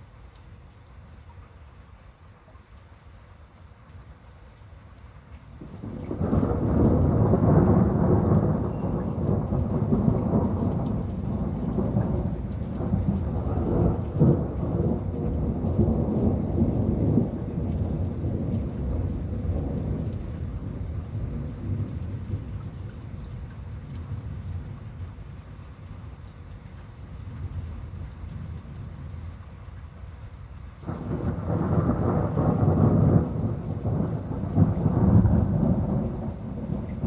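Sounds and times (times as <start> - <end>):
thunder rumbling: 5.6 - 26.1, 30.8 - 37.0.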